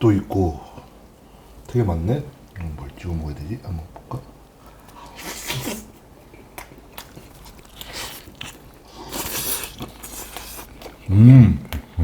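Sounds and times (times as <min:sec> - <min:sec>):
person chewing meat: 0:04.6 - 0:12.0
wet smacks: 0:06.5 - 0:11.0.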